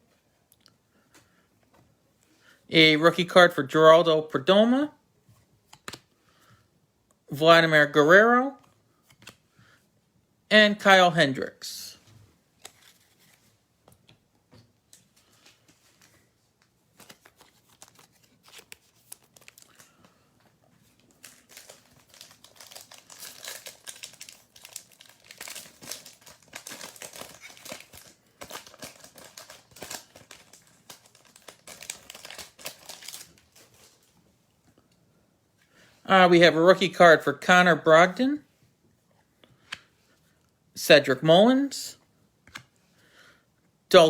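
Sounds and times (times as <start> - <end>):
wrapper tearing and crinkling: 17.0 - 20.0, 21.0 - 34.0.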